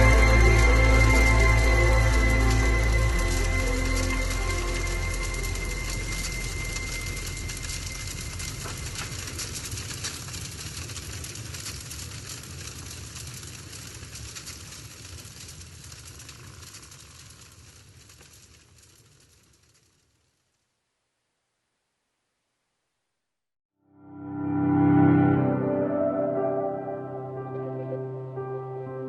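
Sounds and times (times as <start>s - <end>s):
dense noisy music wash: 0.0s - 9.6s.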